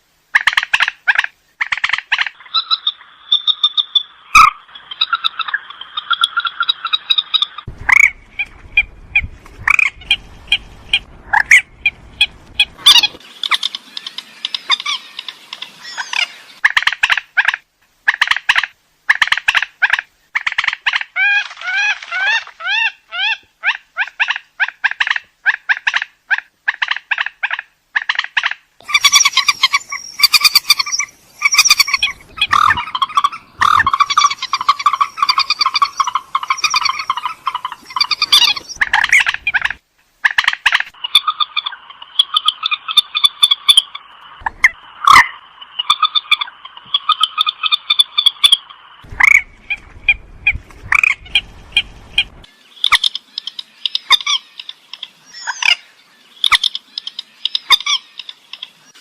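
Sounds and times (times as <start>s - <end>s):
bird cackling calls: 0.4s - 59.0s
bird calling in sharp notes: 28.8s - 39.6s.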